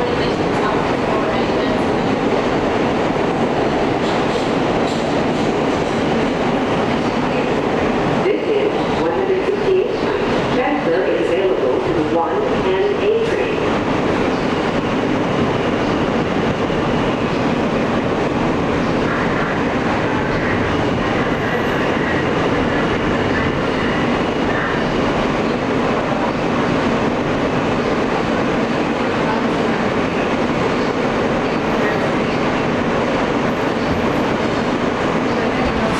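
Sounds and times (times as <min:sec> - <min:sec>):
clatter over track: 0:00.0 - 0:08.1
subway wheels rumbling on rail: 0:00.0 - 0:35.9.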